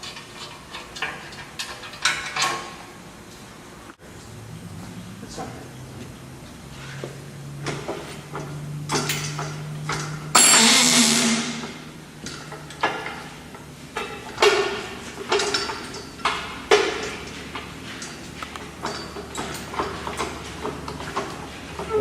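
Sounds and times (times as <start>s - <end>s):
steady low hum: 3.5s - 19.4s
metal clanks and knocks: 7.6s - 22.0s.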